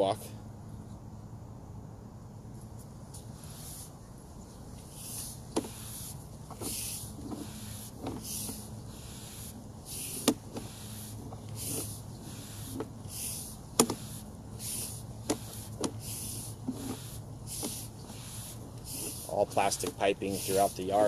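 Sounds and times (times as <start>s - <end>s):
steady low hum: 0.0s - 21.0s
cable hissing in pipe: 4.9s - 21.0s
sharp clicks and knocks: 10.2s - 10.7s, 13.8s - 14.0s.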